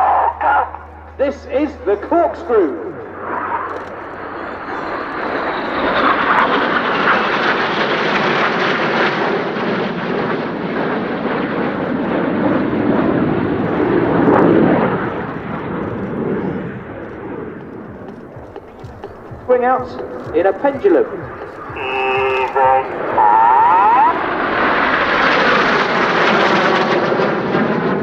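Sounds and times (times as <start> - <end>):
jets flying past: 0.0 - 28.0.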